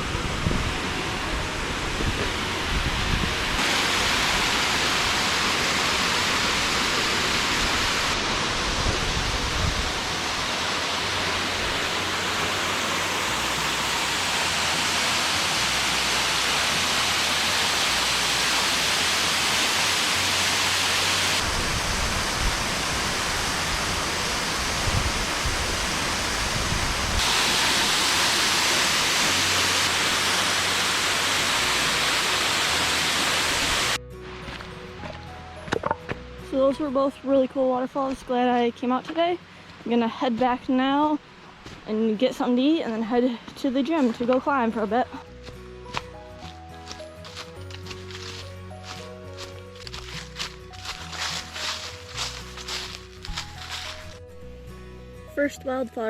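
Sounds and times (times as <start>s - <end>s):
waterfall rushing: 0.0s - 34.0s, 48.0s - 54.1s.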